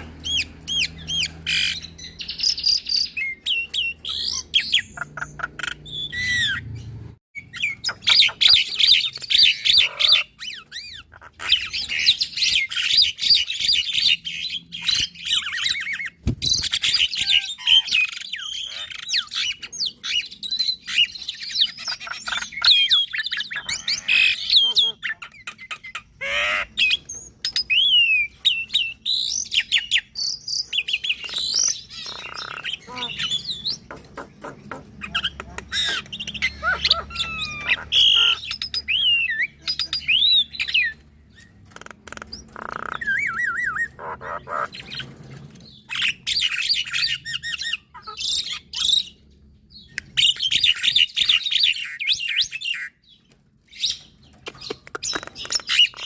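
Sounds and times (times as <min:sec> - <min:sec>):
birds chattering and whistling: 0:00.0 - 0:56.0.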